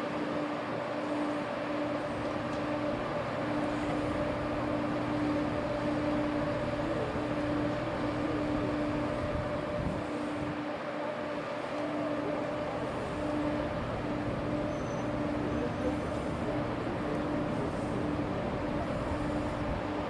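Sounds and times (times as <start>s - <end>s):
train running with drone: 0.0s - 20.0s
low hum: 11.6s - 20.0s.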